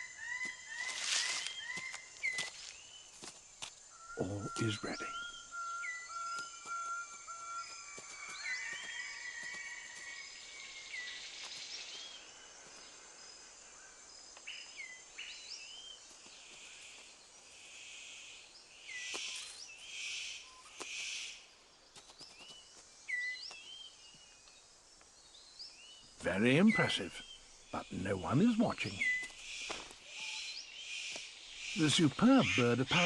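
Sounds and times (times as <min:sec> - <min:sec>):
whistled bird calls: 0:03.9 - 0:10.0, 0:26.3 - 0:29.4, 0:30.1 - 0:33.0.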